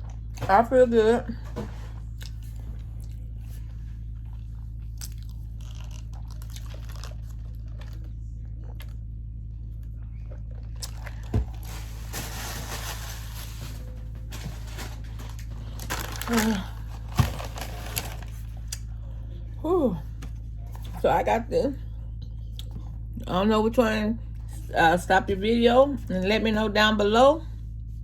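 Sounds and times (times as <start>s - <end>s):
low hum: 0.0s - 28.0s
person chewing food: 2.0s - 12.0s, 22.2s - 23.0s.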